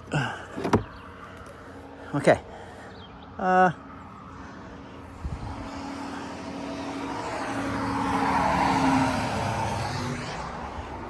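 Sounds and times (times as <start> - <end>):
vehicle driving past: 5.2 - 11.0.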